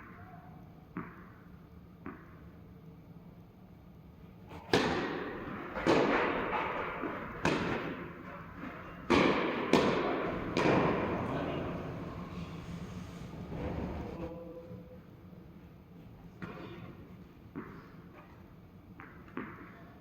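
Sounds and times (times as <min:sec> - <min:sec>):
tennis ball bouncing: 0:00.9 - 0:01.3, 0:02.0 - 0:02.4, 0:04.5 - 0:14.2, 0:19.0 - 0:19.8
tennis racket hitting ball: 0:04.5 - 0:14.2.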